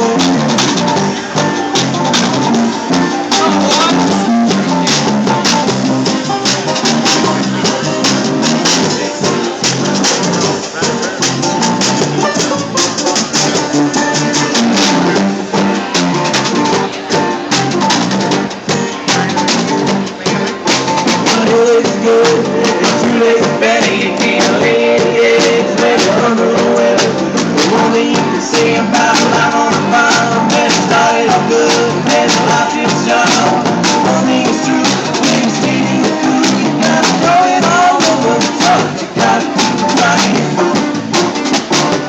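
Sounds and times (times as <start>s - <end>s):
drum kit: 0.0s - 42.0s
electric guitar: 0.0s - 42.0s
live rock band playing: 0.0s - 42.0s.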